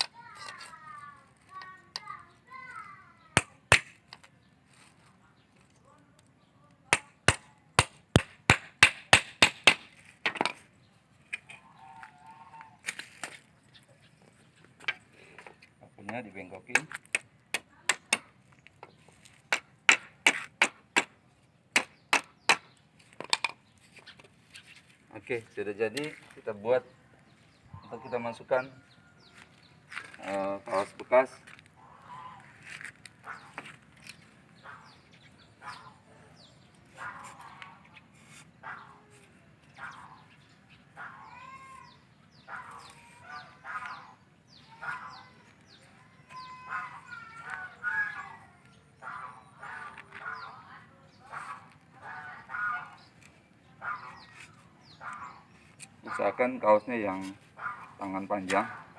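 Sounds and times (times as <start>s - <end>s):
hammer striking nail in wood: 3.4s - 4.0s, 7.0s - 10.6s, 19.5s - 21.2s, 21.8s - 22.7s.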